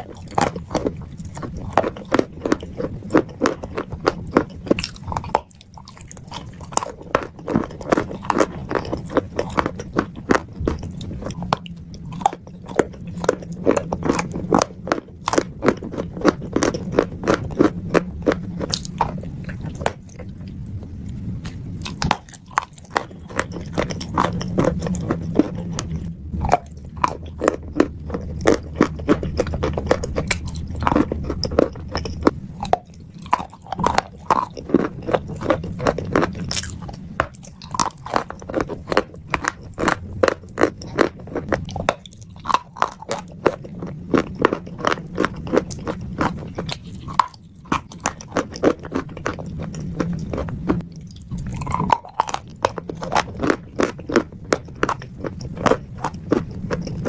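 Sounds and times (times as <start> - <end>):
wet crunchy chewing: 0.0 - 57.0.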